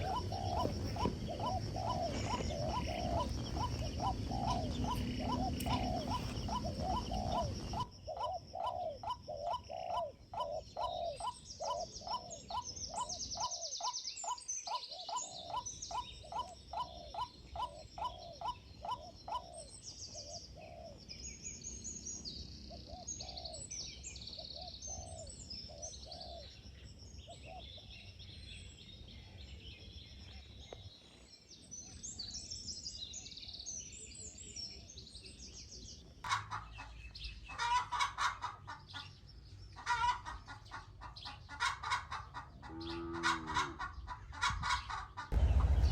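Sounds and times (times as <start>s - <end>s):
bird upward-hooked calls: 0.0s - 13.4s
louder bird calls: 0.0s - 21.0s, 36.2s - 45.9s.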